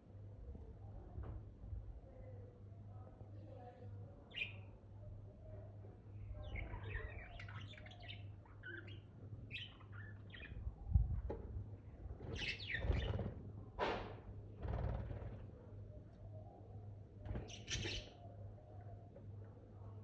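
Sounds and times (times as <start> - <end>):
budgerigars chirping and chattering: 6.4 - 10.6, 12.3 - 13.3, 17.3 - 18.2.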